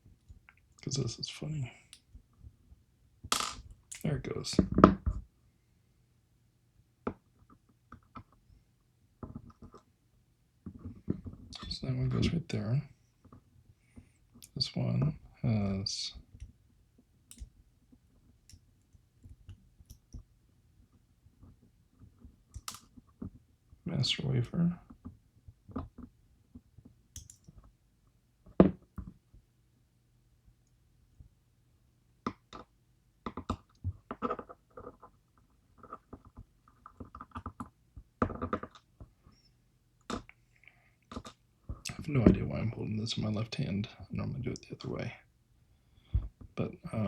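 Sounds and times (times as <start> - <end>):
small clicks and taps of lock tools: 17.3 - 17.5, 27.2 - 27.7.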